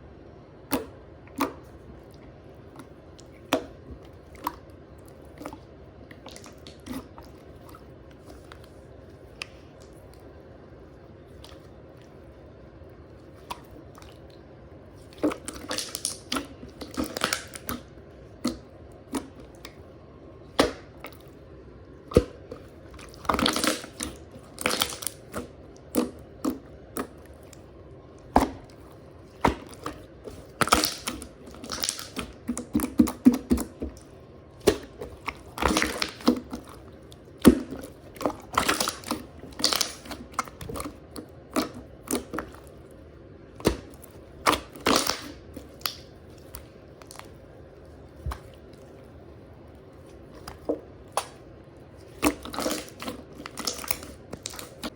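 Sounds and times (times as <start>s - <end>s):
slime squishing and popping: 15.0s - 19.8s, 20.4s - 21.4s, 22.0s - 42.9s, 43.5s - 47.5s, 50.0s - 54.9s.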